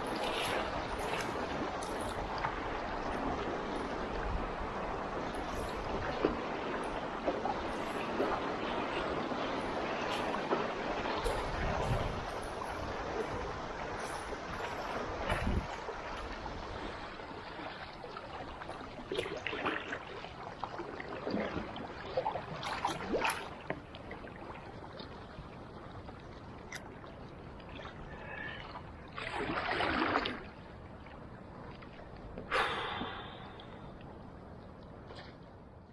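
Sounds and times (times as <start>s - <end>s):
river water rushing: 0.0s - 20.2s
paddle strokes splashing: 0.0s - 25.4s, 27.1s - 33.5s.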